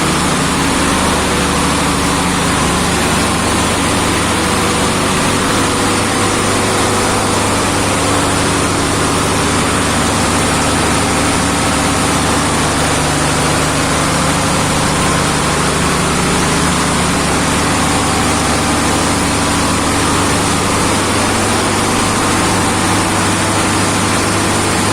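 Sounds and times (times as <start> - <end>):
pump machinery droning: 0.0 - 24.9.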